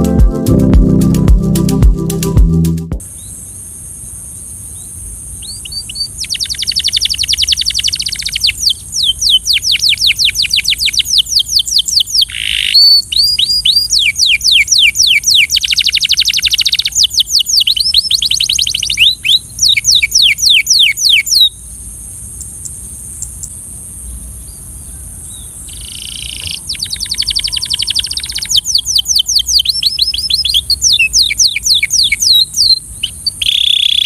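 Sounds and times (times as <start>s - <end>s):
steady high hiss: 0.0s - 10.7s
canary singing trills: 5.4s - 21.6s, 24.5s - 34.0s.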